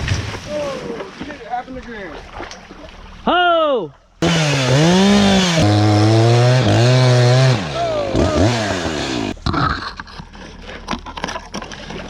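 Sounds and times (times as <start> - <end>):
chainsaw engine revving: 4.2 - 9.8.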